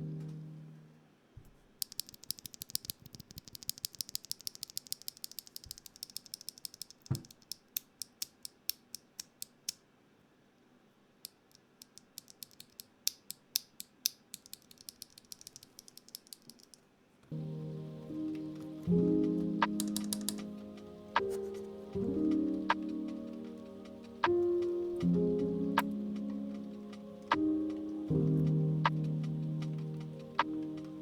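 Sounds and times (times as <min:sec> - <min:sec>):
sharp mechanical clicks: 0:01.8 - 0:09.8, 0:11.2 - 0:16.9.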